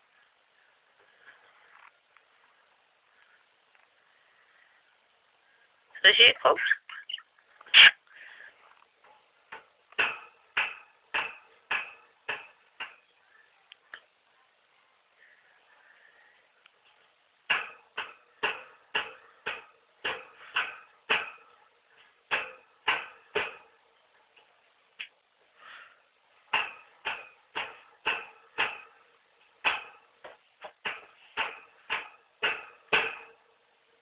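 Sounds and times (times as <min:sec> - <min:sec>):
sharp hollow taps: 0:09.0 - 0:13.0, 0:17.5 - 0:21.6, 0:22.3 - 0:23.8, 0:26.5 - 0:29.0, 0:29.6 - 0:33.4.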